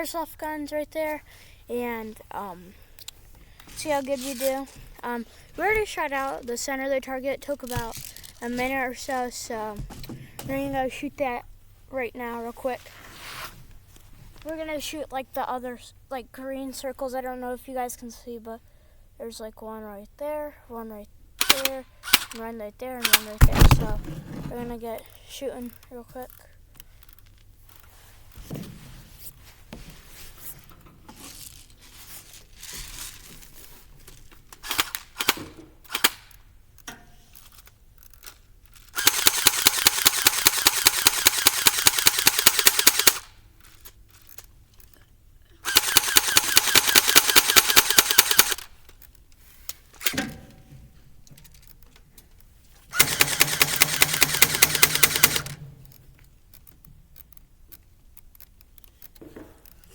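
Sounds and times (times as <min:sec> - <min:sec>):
airsoft gun full auto bursts: 0:21.4 - 0:22.4, 0:34.6 - 0:36.4, 0:38.9 - 0:43.3, 0:45.6 - 0:48.7, 0:52.9 - 0:55.6
sharp clicks: 0:21.4 - 0:22.4, 0:34.6 - 0:36.9, 0:38.0 - 0:43.3, 0:45.7 - 0:50.2, 0:52.9 - 0:59.9.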